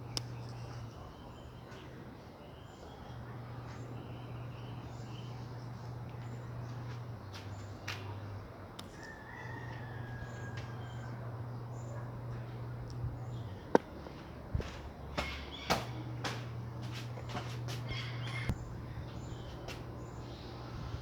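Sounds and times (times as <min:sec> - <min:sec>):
birds chirping: 0:00.0 - 0:21.0
low hum: 0:02.7 - 0:09.0.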